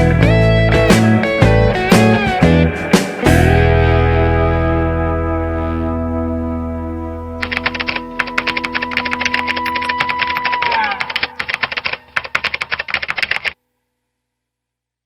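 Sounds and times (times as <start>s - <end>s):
rapid irregular clicking: 7.4s - 13.6s.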